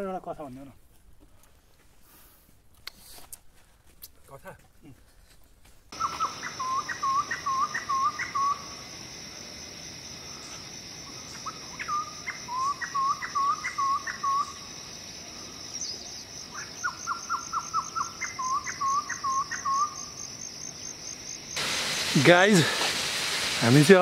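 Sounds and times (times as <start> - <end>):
high insect drone: 6.0 - 24.0.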